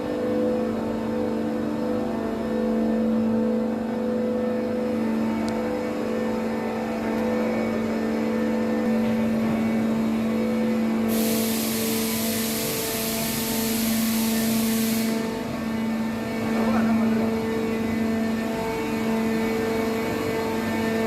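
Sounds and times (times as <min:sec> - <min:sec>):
construction machinery droning: 0:00.0 - 0:21.0
hiss: 0:11.0 - 0:15.4.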